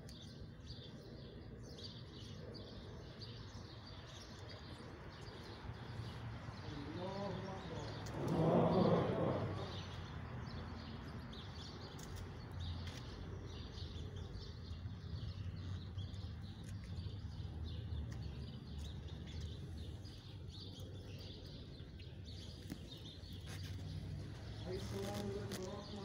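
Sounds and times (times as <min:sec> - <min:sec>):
birds chirping: 0:00.0 - 0:26.0
low outdoor rumble: 0:04.6 - 0:11.2.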